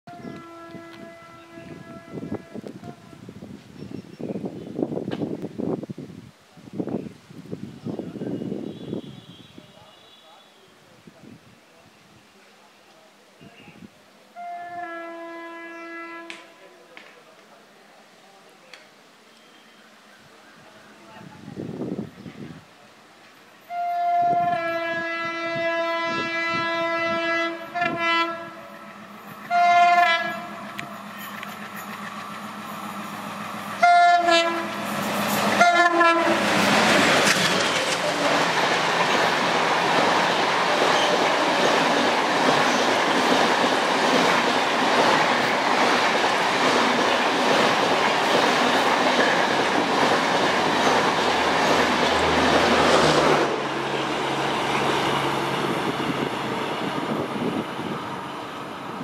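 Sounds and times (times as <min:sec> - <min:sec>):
locomotive horn blasts: 0:00.1 - 0:03.0, 0:14.4 - 0:16.6, 0:23.7 - 0:28.8, 0:29.5 - 0:30.9, 0:33.8 - 0:34.8, 0:35.6 - 0:36.4
coaches rumbling and clattering on rails: 0:27.1 - 0:59.0.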